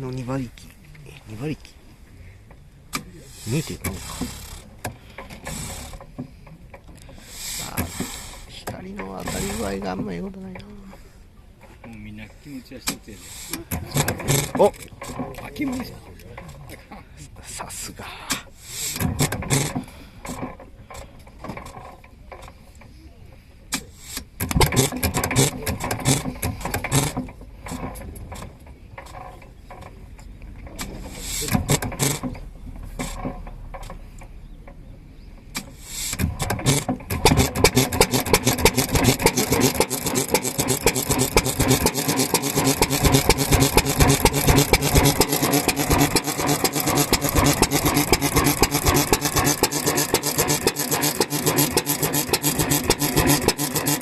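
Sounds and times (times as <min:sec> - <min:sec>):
stationary engine running: 0:09.0 - 0:10.2, 0:36.0 - 0:54.0.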